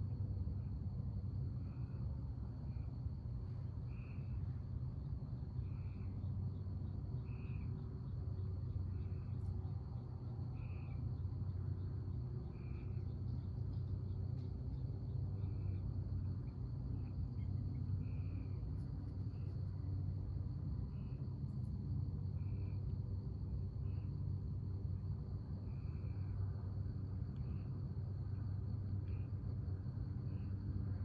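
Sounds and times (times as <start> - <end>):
low steady rumble: 0.0 - 31.0
high insect trill: 0.2 - 31.0.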